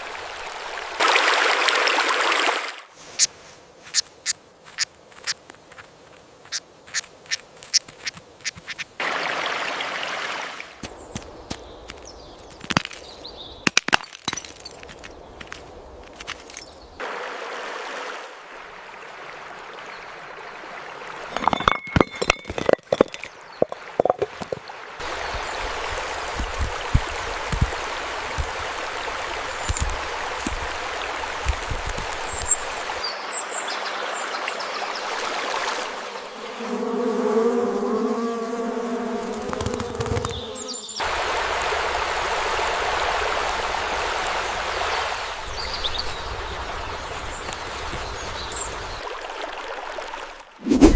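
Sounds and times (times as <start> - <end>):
steady rushing: 50.6 - 50.9.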